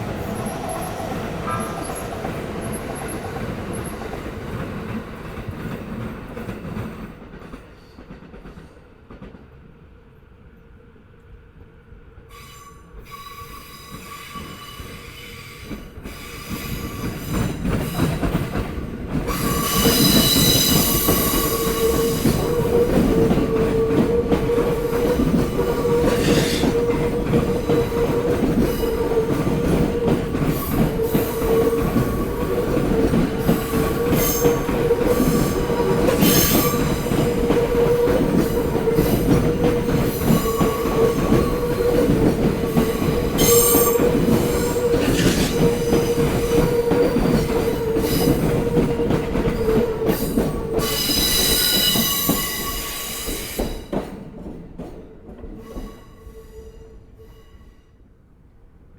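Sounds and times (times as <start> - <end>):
train wheel and rail rumble: 0.0 - 58.9
train wheel squeals: 12.3 - 18.4, 19.3 - 54.0, 55.6 - 58.0.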